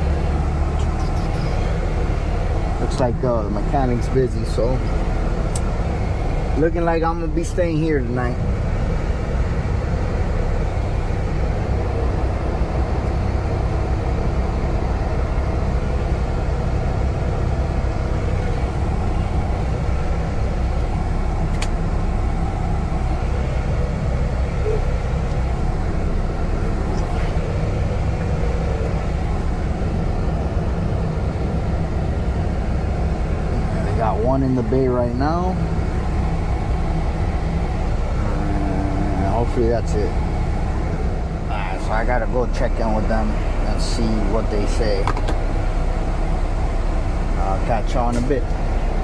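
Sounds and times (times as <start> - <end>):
diesel engine idling: 0.0 - 49.0
sharp click: 21.5 - 21.8.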